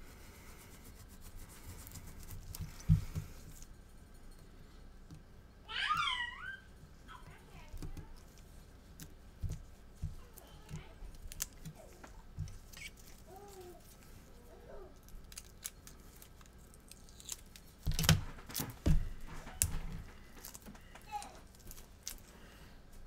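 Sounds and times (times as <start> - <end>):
small clicks and handling noises: 7.2 - 14.2, 14.9 - 22.3.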